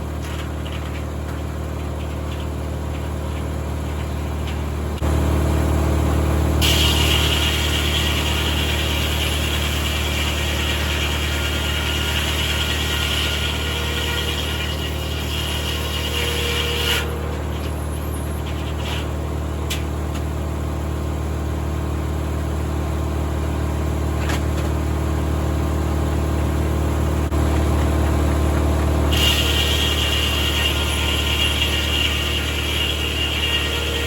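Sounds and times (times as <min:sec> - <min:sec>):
tractor engine running: 0:00.0 - 0:12.4, 0:16.2 - 0:34.0
high-pitched sawmill noise: 0:06.5 - 0:19.4, 0:27.3 - 0:34.0.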